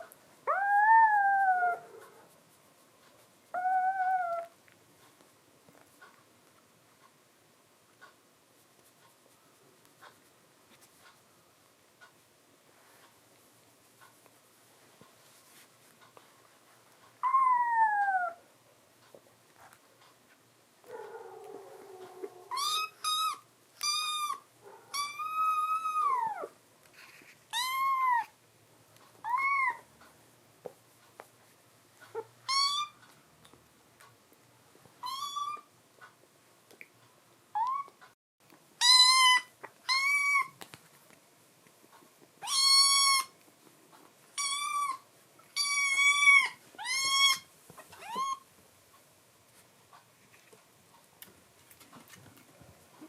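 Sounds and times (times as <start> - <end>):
kitten meowing: 3.6 - 4.5, 22.2 - 26.5, 27.5 - 28.3, 29.2 - 29.8, 35.0 - 35.7, 38.8 - 40.6, 42.4 - 43.3, 45.6 - 48.4.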